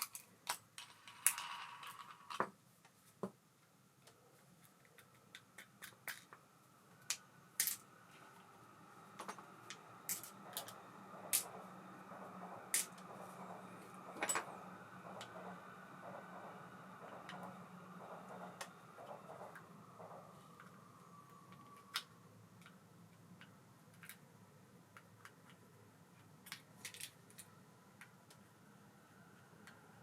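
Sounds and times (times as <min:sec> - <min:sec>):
faint mechanical whirr: 0:00.0 - 0:30.0.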